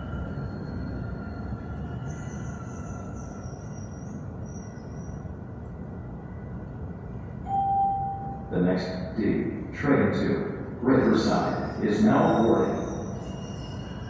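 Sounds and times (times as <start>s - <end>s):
wheels squealing on rails: 0.0s - 9.1s, 10.6s - 14.0s
subway train rumble: 0.0s - 14.0s.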